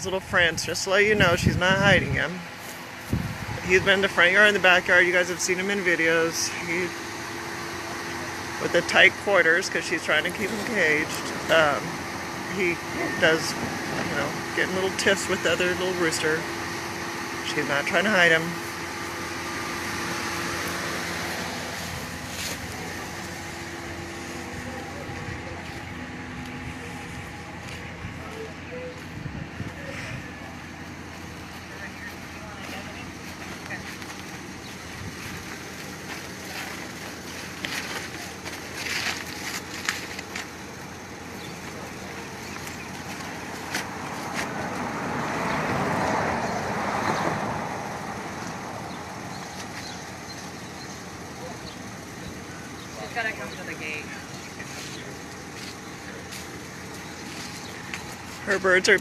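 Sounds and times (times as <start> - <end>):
outdoor background noise: 0.0 - 59.0
steady mechanical hum: 0.0 - 59.0
vehicle driving past: 41.7 - 50.5.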